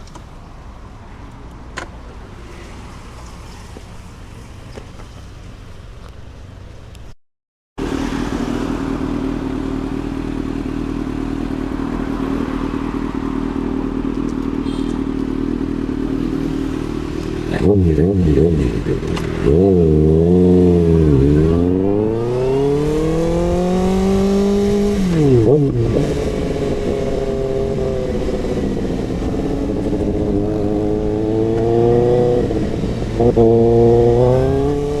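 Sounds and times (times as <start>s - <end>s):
motorcycle engine idling and revving: 7.8s - 35.0s.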